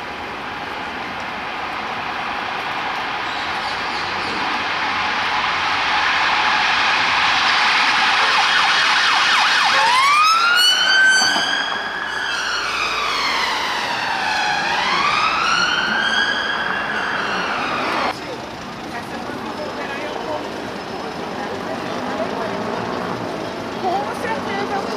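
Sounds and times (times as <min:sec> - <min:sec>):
loud rushing noise: 0:00.0 - 0:09.8, 0:11.2 - 0:18.2
police siren: 0:00.0 - 0:18.2.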